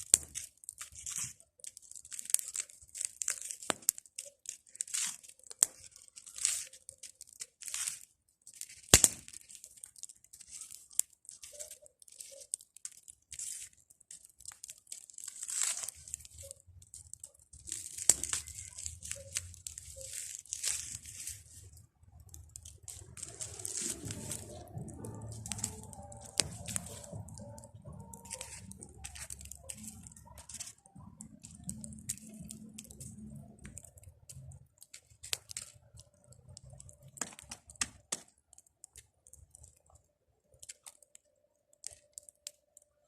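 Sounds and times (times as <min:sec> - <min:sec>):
bonfire crackling and popping: 0:00.0 - 0:43.0
low rumble: 0:23.2 - 0:29.0.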